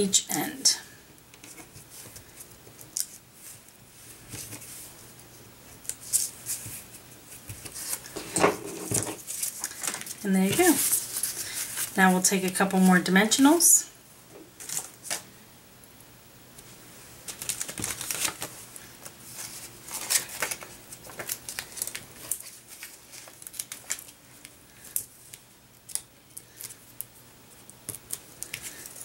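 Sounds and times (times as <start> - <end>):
paper card handling: 7.4 - 12.0, 17.3 - 24.1
foam adhesive peeling crinkling: 17.2 - 29.0.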